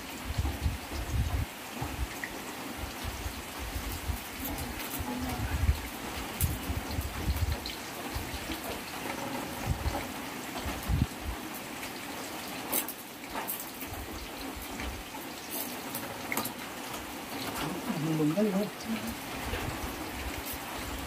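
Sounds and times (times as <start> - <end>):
heavy rain on a metal roof: 0.0 - 21.0
sharp drip-like clicks: 11.8 - 17.7.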